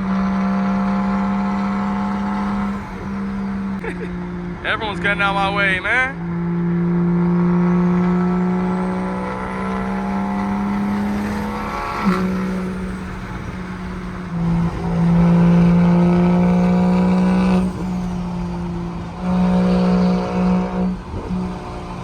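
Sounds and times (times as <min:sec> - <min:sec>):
car exhaust drone: 0:00.0 - 0:22.0.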